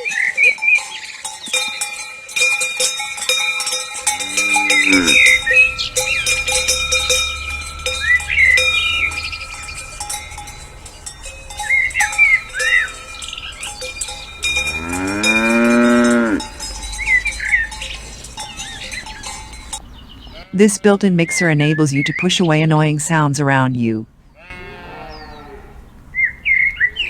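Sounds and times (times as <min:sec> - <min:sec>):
cowbells ringing: 0:00.0 - 0:22.4
cow mooing: 0:04.0 - 0:21.0, 0:24.4 - 0:25.9.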